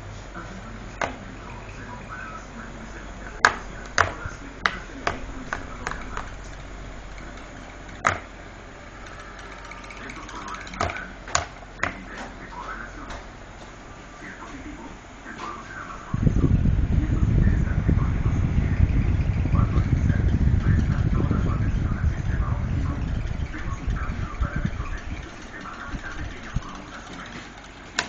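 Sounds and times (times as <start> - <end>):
faint voices: 0.0 - 28.0
steady low hum: 0.0 - 28.0
sharp clicks and knocks: 3.4 - 8.3, 9.0 - 12.4, 24.6 - 28.0.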